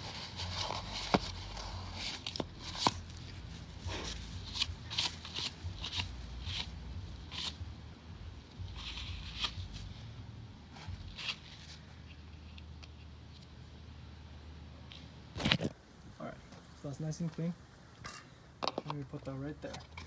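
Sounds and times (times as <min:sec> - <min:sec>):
paper towel rustling and rubbing: 0:00.0 - 0:06.7.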